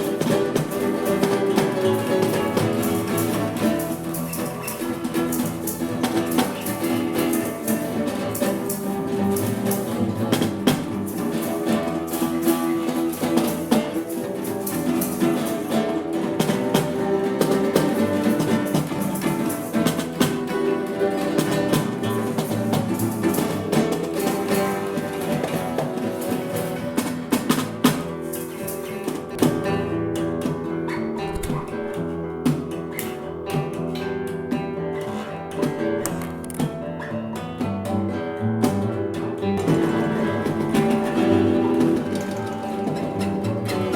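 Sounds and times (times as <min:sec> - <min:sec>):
electric guitar: 0:00.0 - 0:43.9
bass guitar: 0:29.3 - 0:33.5
sharp drum hits: 0:31.2 - 0:33.1.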